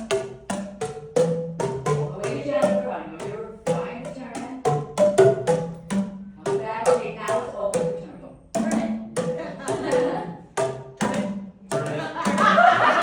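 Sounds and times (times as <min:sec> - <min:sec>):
plastic tubes struck: 0:03.7 - 0:12.5.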